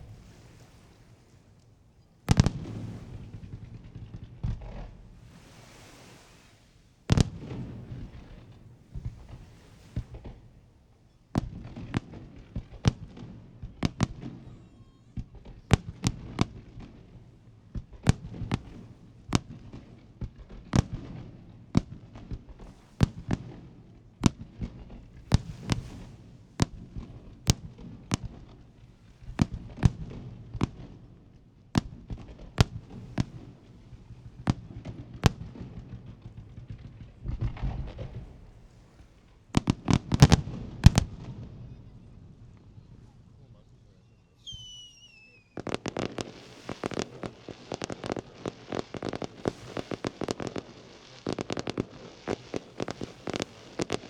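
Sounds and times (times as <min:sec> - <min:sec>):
firework shells bursting: 0:24.2 - 0:30.8, 0:44.4 - 0:54.0.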